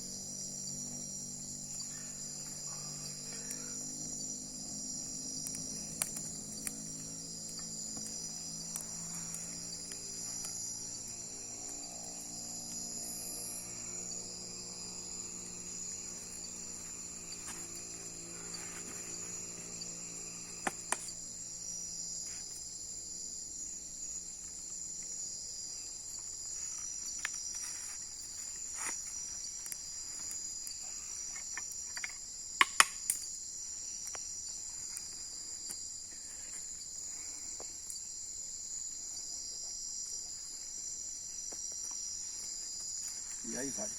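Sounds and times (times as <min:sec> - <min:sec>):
crickets trilling: 0:00.0 - 0:43.9
sharp snaps: 0:32.6 - 0:33.3.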